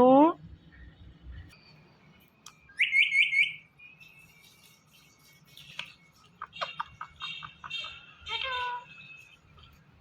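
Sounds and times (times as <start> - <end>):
parrot whistle-like chirps: 2.7 - 4.0.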